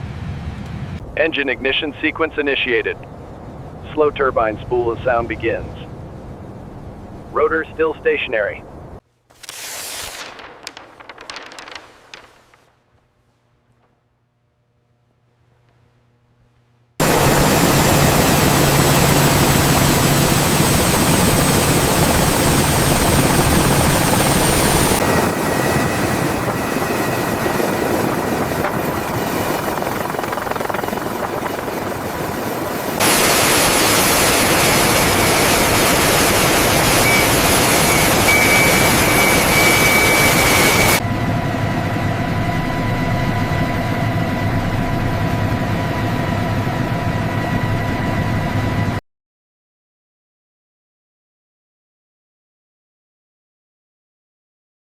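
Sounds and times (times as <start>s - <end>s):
helicopter turbine whining: 17.0s - 49.0s.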